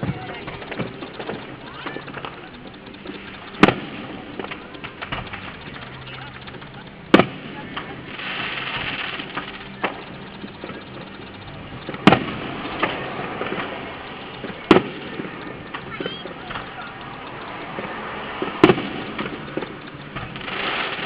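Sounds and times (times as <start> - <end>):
low background hum: 0.0 - 21.0
fireworks bangs: 3.2 - 4.5, 7.1 - 7.4, 8.1 - 10.9, 20.2 - 21.0.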